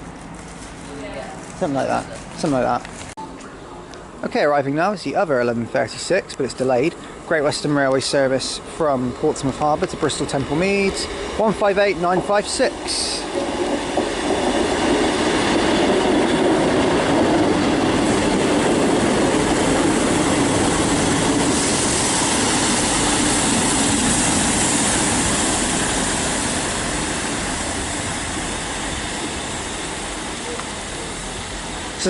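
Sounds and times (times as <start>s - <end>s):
train engines and wheels rumbling: 0.0s - 32.0s
train brake hiss: 8.1s - 13.5s, 20.0s - 32.0s.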